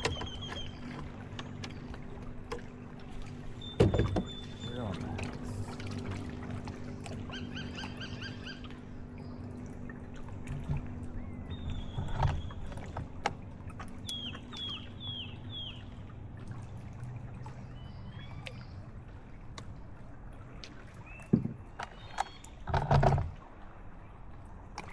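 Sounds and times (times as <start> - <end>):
birds calling: 0.0 - 9.9, 10.8 - 13.2, 13.8 - 16.3
water lapping and trickling: 0.0 - 24.9.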